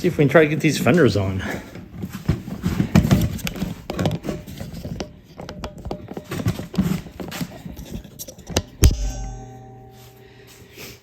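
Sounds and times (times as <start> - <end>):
plastic fenders clicking and scraping: 0.7 - 9.0.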